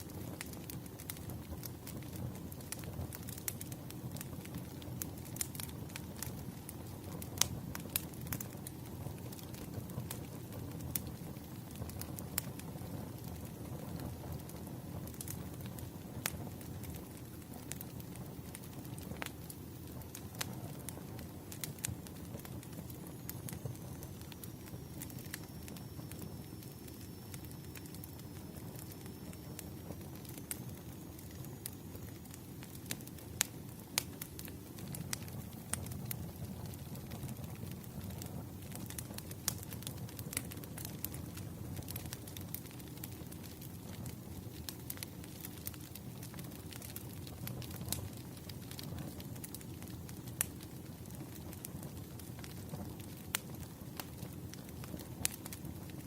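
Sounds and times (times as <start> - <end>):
faint high hiss-like tone: 0.0 - 56.0
wood fire crackling and popping: 0.0 - 56.0.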